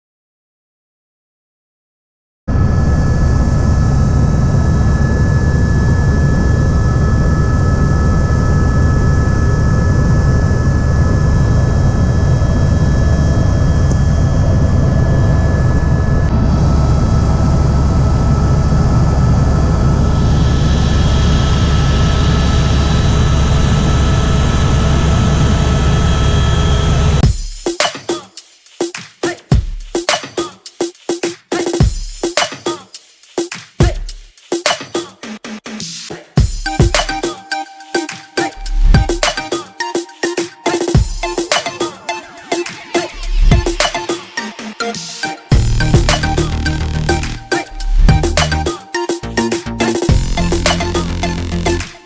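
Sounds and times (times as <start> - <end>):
high whine: 2.5 - 27.3, 36.4 - 52.0
helicopter engine and rotor rumble: 2.7 - 27.2.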